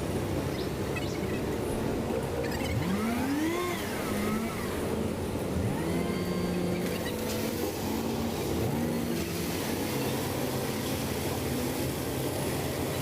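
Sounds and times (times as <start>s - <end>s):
diesel engine revving: 1.4s - 13.0s.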